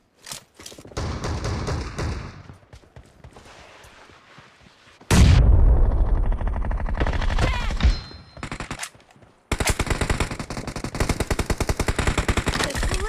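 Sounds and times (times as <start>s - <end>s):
video game automatic gunfire: 9.5s - 13.0s.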